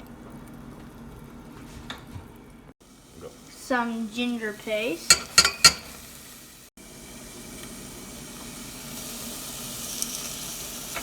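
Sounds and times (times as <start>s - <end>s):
onions sizzling in a pan: 2.8s - 11.0s.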